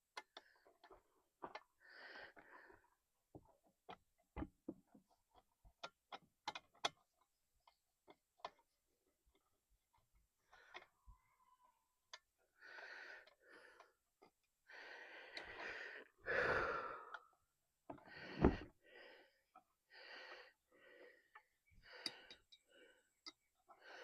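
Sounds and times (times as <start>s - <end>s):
man breathing hard: 1.8s - 3.0s, 12.6s - 17.3s, 18.0s - 24.0s.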